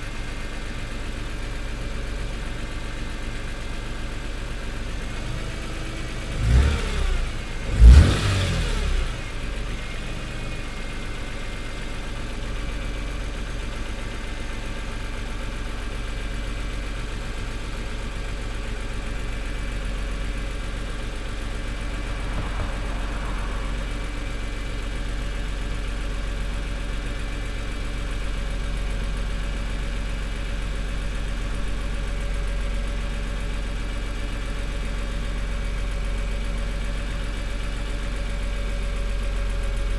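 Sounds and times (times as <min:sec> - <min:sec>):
car engine idling: 0:00.1 - 0:39.9
car engine revving: 0:05.2 - 0:09.4, 0:19.4 - 0:26.0.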